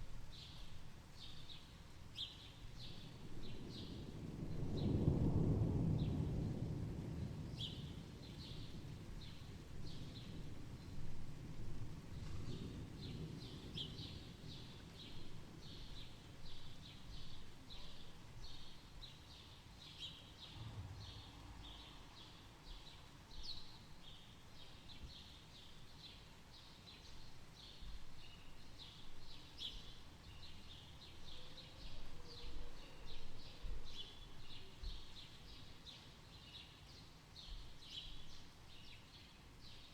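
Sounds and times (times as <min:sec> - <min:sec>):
low rumble: 0:20.6 - 0:22.2.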